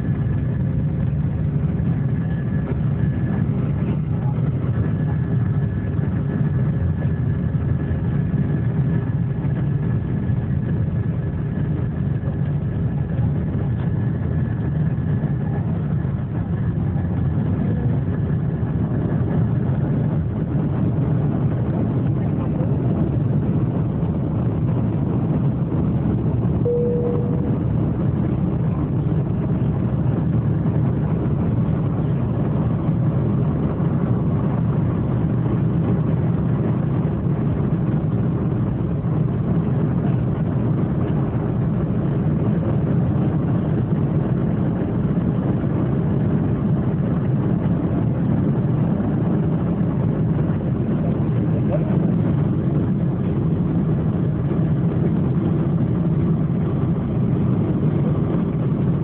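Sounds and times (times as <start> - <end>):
airliner engines rumbling in cabin: 0.0 - 59.0
brief cabin tone: 26.6 - 27.7.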